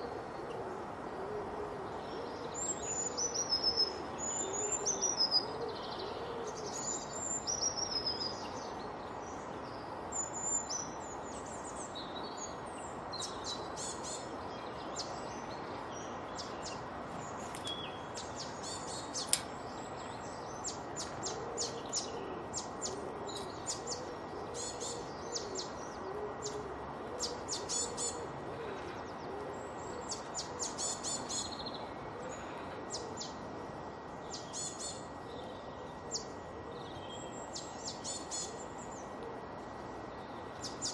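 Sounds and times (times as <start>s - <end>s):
steady background hiss: 0.0s - 40.9s
birds singing and chirping: 1.9s - 33.4s, 34.0s - 39.2s.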